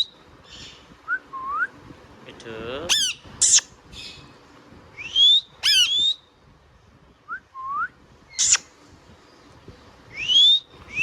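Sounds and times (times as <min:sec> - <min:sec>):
parakeet harsh screech: 0:02.9 - 0:03.6, 0:05.6 - 0:06.1
parakeet whistling: 0:02.9 - 0:03.7, 0:05.0 - 0:06.3, 0:07.6 - 0:08.6, 0:10.1 - 0:11.0.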